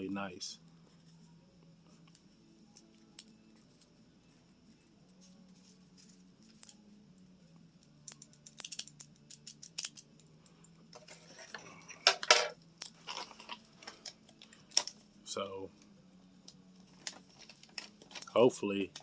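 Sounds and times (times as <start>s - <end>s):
crinkling handling noises: 8.6s - 15.1s, 16.8s - 19.0s.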